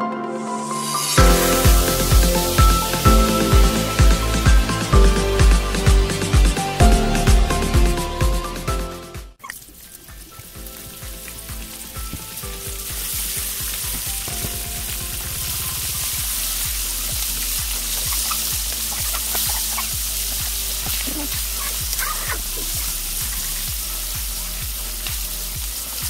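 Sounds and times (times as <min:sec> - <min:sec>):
fish sizzling in hot oil: 0:01.1 - 0:04.3, 0:09.4 - 0:26.0.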